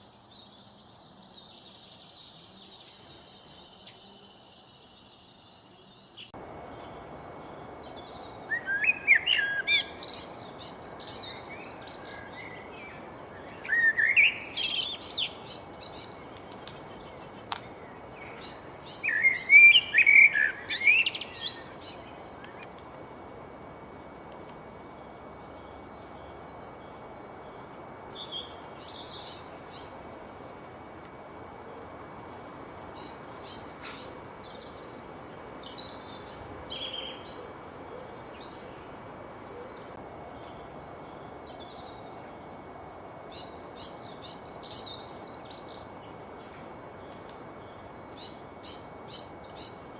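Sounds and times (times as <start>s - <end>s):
songbird singing: 0.0s - 49.9s
steady background hiss: 0.0s - 49.9s.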